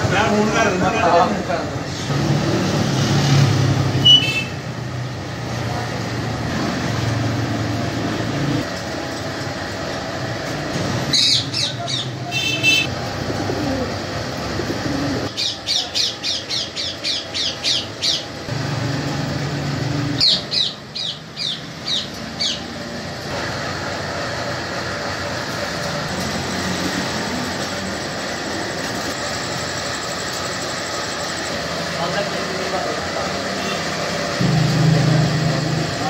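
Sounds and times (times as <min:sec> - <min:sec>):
shrill bird calls: 0:11.1 - 0:12.2, 0:15.3 - 0:18.4, 0:20.2 - 0:22.7.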